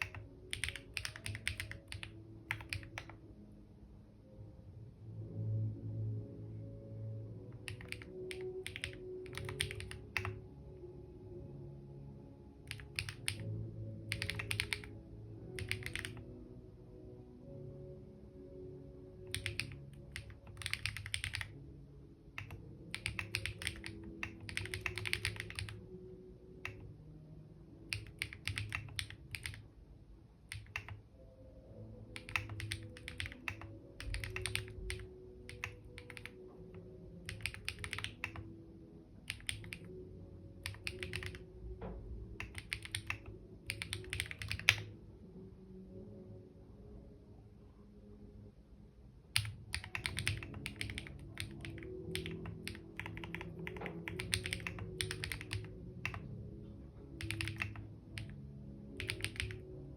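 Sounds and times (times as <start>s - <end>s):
computer keyboard typing: 0.0s - 3.2s, 7.5s - 10.5s, 12.6s - 16.3s, 19.2s - 21.6s, 22.3s - 25.9s, 26.6s - 26.9s, 27.9s - 29.7s, 30.5s - 31.1s, 32.1s - 38.6s, 39.2s - 40.0s, 40.6s - 41.5s, 42.4s - 44.9s, 49.4s - 56.4s, 57.1s - 59.7s.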